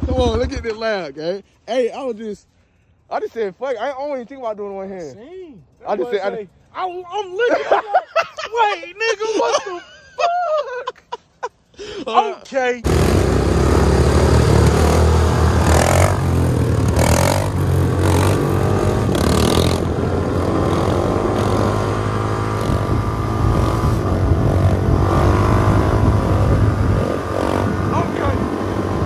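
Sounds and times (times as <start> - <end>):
dirt bike engine revving: 12.8 - 29.0.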